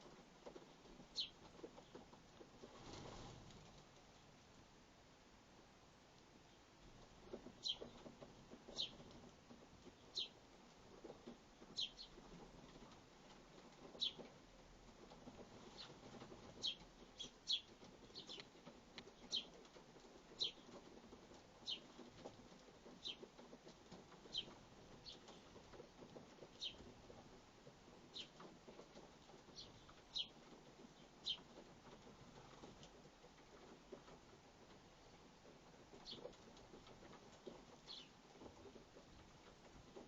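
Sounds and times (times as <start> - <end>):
wings fluttering: 0.0 - 4.2
sparrows chirping: 1.1 - 1.4, 7.6 - 8.0, 8.7 - 9.0, 9.9 - 10.4, 11.7 - 12.2, 14.0 - 14.2, 15.7 - 18.5, 19.1 - 19.6, 20.3 - 20.8, 21.6 - 22.0, 23.0 - 23.3, 24.2 - 25.5, 26.5 - 26.9, 28.0 - 28.4, 29.4 - 30.4, 31.0 - 31.5, 36.0 - 36.4, 37.8 - 38.2.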